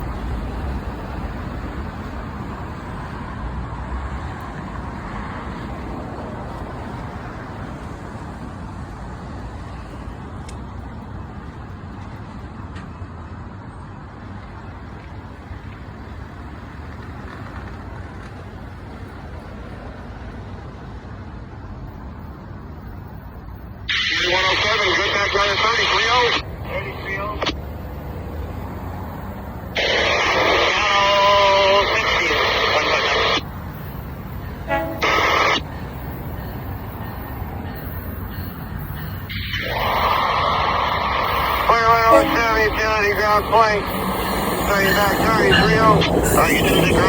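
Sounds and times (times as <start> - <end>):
passing vehicle rumble: 23.9 - 47.0.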